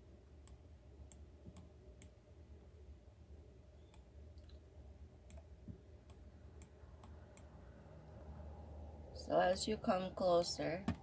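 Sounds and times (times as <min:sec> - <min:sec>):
low room hum: 0:00.0 - 0:11.0
computer mouse clicks: 0:05.3 - 0:07.5.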